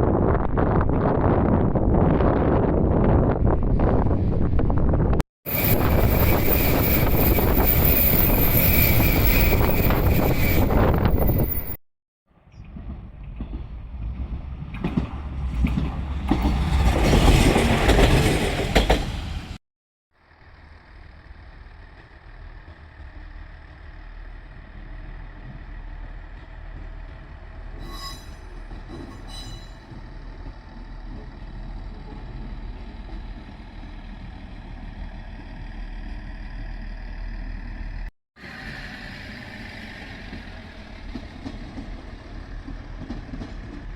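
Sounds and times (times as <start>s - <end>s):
train running with low hum: 0.1s - 11.8s, 12.4s - 19.6s, 20.2s - 43.9s
short high squeals: 5.5s - 11.8s, 27.8s - 29.9s
train rushing past: 5.5s - 11.8s, 12.6s - 19.6s, 38.4s - 43.9s.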